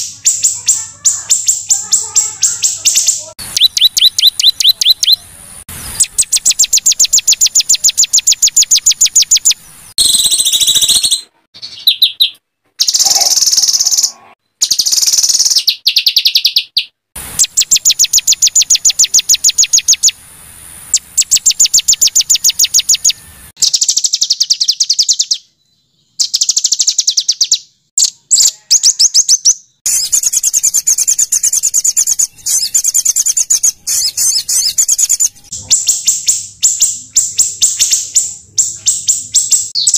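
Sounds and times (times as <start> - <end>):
songbird harsh high trills: 0.0 - 15.7, 28.3 - 39.9.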